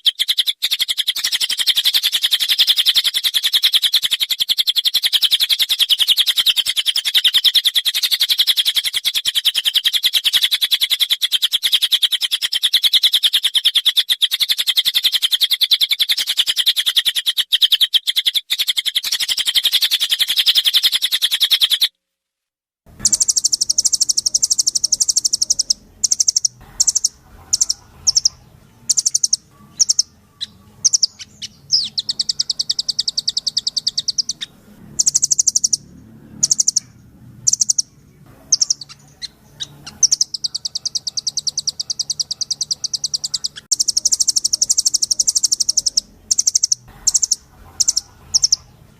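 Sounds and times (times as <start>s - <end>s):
fast high bird trill: 22.9s - 48.9s
bird singing high trills: 23.0s - 48.8s.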